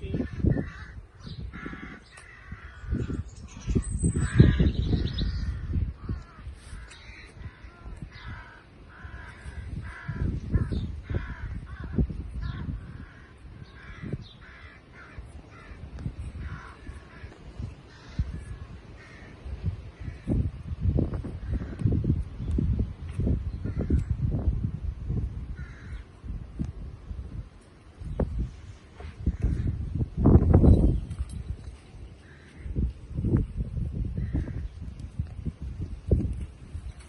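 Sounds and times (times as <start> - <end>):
birds cawing: 0.0 - 20.5, 21.2 - 22.0, 23.4 - 24.3, 25.5 - 26.1, 31.9 - 33.0, 34.1 - 34.9.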